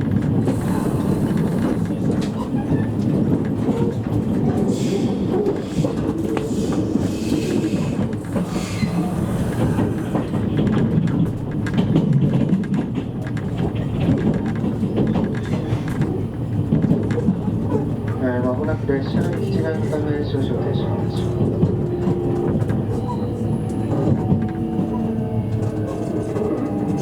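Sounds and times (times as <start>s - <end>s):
clicks over rail joints: 0.0s - 20.0s
train wheels rumbling on rails: 0.0s - 27.0s.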